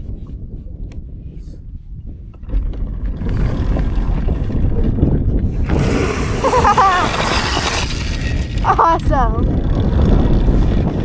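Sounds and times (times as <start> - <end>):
wind buffeting microphone: 0.0 - 11.0
high wavering voice: 8.6 - 9.4.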